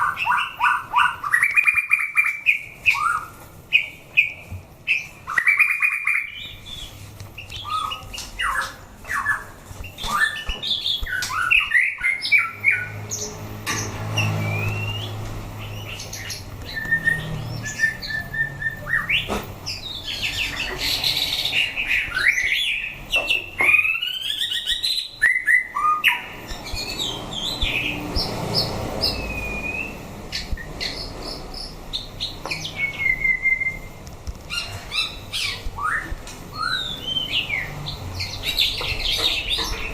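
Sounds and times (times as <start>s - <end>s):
bird singing whistled phrases: 14.4s - 15.2s, 16.7s - 19.3s, 23.6s - 26.2s, 29.0s - 30.0s, 32.6s - 33.9s, 34.6s - 37.6s.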